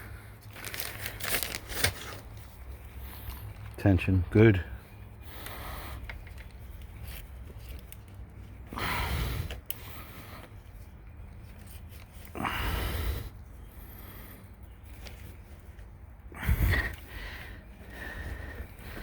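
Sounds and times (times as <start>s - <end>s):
man breathing out heavily: 4.7s - 6.2s, 8.6s - 10.6s, 12.2s - 14.7s, 16.3s - 19.0s.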